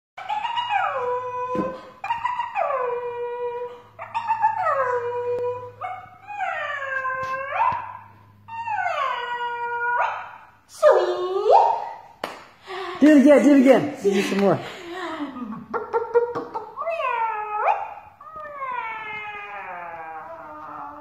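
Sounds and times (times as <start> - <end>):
dog howling: 0.2 - 11.6, 16.8 - 21.0.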